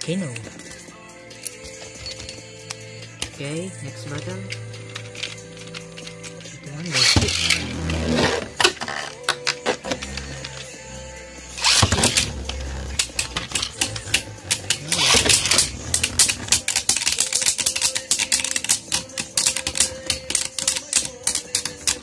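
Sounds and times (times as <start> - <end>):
plastic tops clashing clicks: 4.1 - 10.7, 11.6 - 22.0.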